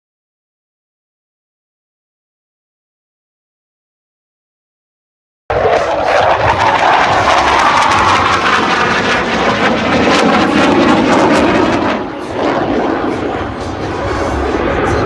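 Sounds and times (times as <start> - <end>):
fighter jet engines roaring past: 5.5 - 15.0.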